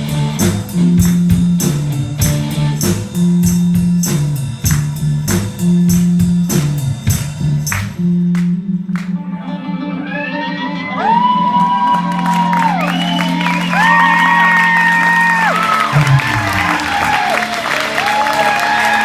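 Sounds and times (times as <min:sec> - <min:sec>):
drums striking: 0:00.0 - 0:09.1, 0:15.4 - 0:18.1
rock band playing: 0:00.0 - 0:19.0
audience whooping: 0:09.8 - 0:19.0.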